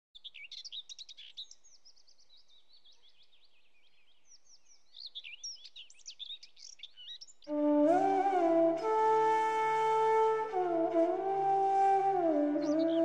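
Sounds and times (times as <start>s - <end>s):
birds chirping: 12.0s - 13.0s.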